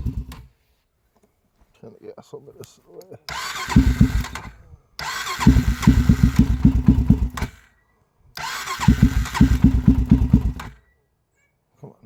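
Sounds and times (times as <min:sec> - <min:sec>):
engine starter cranking: 0:00.0 - 0:00.5, 0:03.3 - 0:07.7, 0:08.4 - 0:10.8.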